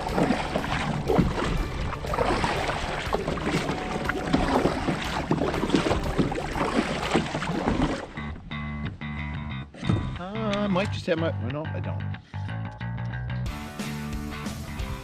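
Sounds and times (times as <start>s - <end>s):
water splashing against kayak hull: 0.0s - 8.5s
wind buffeting microphone: 0.0s - 8.6s.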